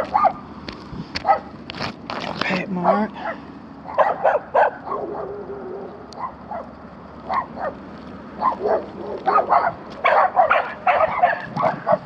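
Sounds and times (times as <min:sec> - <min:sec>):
dog barking: 0:00.1 - 0:00.4, 0:01.2 - 0:01.5, 0:02.8 - 0:06.7, 0:07.3 - 0:07.8, 0:08.4 - 0:12.0.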